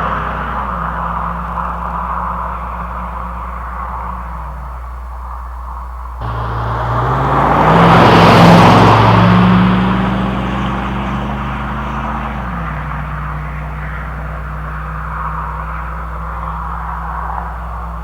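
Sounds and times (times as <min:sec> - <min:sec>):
engine accelerating: 0:06.2 - 0:18.0.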